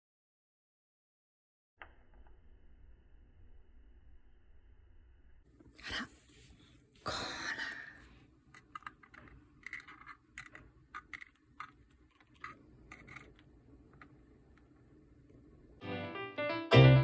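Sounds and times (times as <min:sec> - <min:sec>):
bird beak clicking and crunching: 0:08.5 - 0:14.2.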